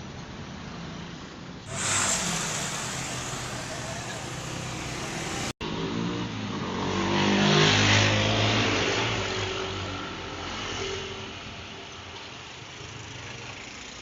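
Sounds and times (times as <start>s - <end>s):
vehicle engine passing by: 1.7s - 5.6s.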